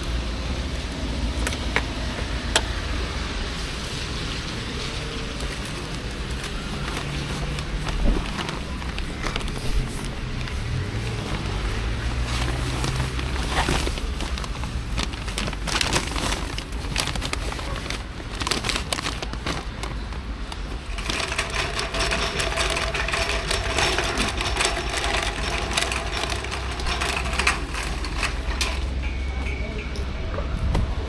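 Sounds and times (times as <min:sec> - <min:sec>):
wind rumble on microphone: 0:29.8 - 0:31.0.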